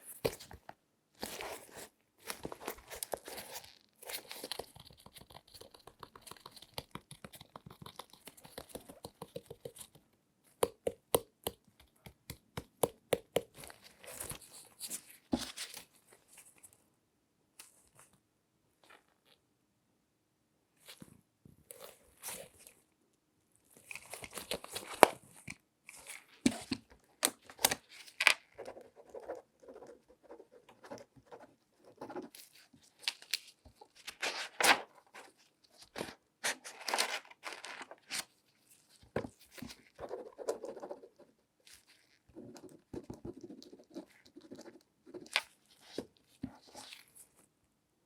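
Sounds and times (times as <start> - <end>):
gloved hands crinkling and rustling: 23.7 - 28.6, 32.4 - 40.0, 45.3 - 47.5.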